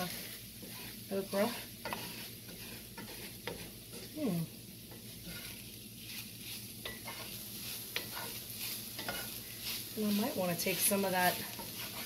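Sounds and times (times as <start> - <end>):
vegetables sizzling in a pot: 0.0 - 12.0
spoon scraping and tapping pot: 0.6 - 4.1, 6.8 - 8.4, 9.0 - 9.4
person humming: 4.1 - 4.5.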